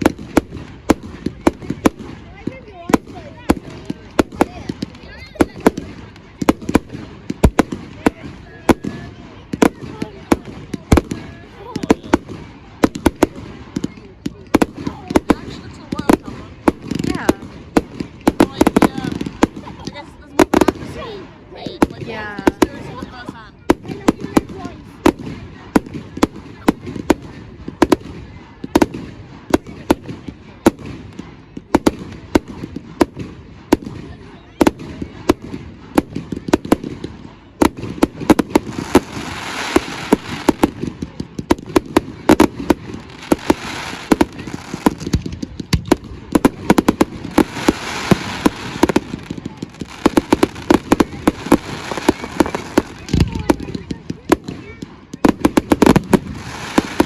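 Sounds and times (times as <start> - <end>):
fireworks banging: 0.0 - 57.0
crackling hiss: 38.3 - 40.9, 41.6 - 53.2, 55.6 - 57.0.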